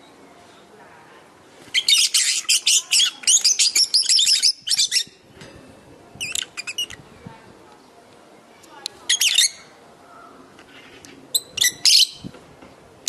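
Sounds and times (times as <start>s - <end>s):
lovebirds chirping and squawking: 1.7s - 5.3s, 6.2s - 7.0s, 9.1s - 12.3s.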